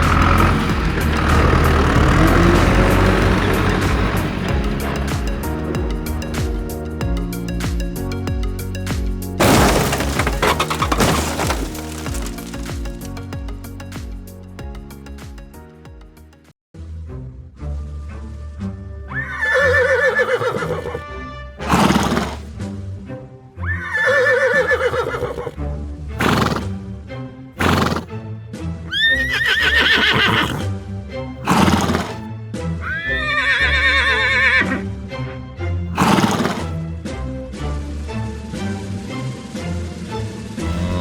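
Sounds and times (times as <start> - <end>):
horse breathy bursts: 0.0 - 4.7, 21.6 - 22.5, 26.2 - 26.8, 27.6 - 28.1, 30.2 - 30.7, 31.4 - 32.2, 35.9 - 36.8, 40.6 - 41.0
horse neighing: 0.0 - 4.8, 19.1 - 21.0, 21.6 - 22.5, 23.6 - 25.6, 26.2 - 26.7, 27.6 - 28.1, 28.9 - 30.7, 31.4 - 32.2, 32.8 - 34.9, 35.9 - 36.8, 40.6 - 41.0
background music: 0.0 - 41.0.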